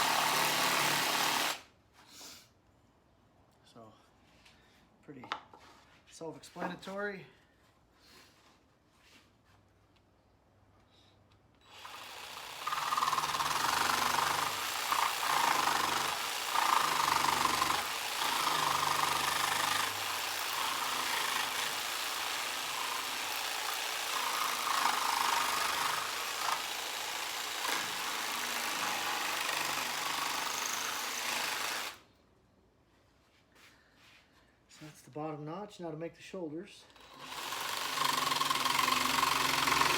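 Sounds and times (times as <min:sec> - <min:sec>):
jigsaw cutting wood: 0:00.0 - 0:01.6, 0:11.7 - 0:32.1, 0:37.0 - 0:39.9.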